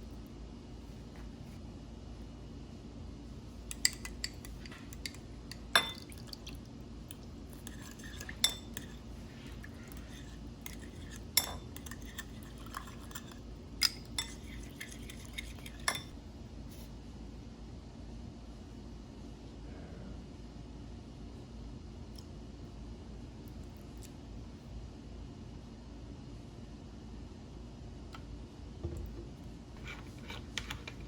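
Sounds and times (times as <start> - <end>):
steady low hum: 0.0 - 31.0
utensils and dishes clinking: 3.7 - 6.2, 10.7 - 16.1.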